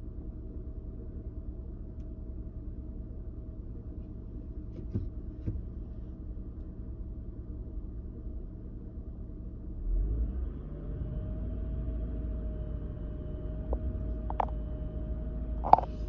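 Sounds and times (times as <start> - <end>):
car engine idling rough: 12.8 - 16.0.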